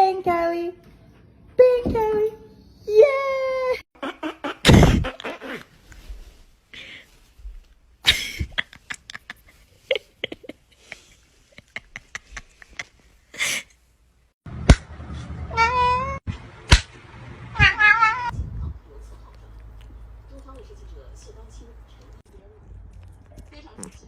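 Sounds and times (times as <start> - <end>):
cat meowing: 17.6 - 18.3.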